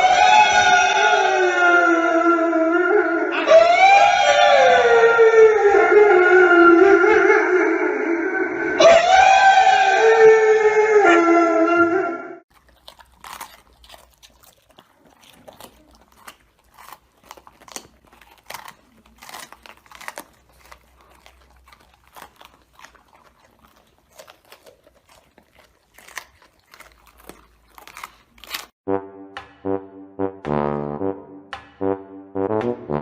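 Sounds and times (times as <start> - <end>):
animal chewing: 12.5 - 28.8.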